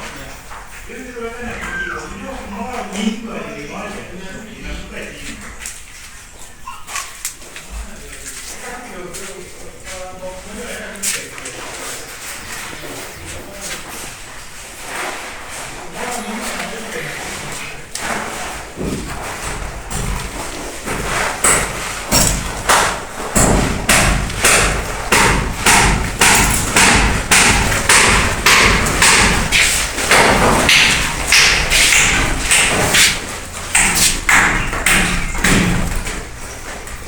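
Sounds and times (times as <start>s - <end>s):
regular thuds with gritty tail: 18.0s - 37.0s.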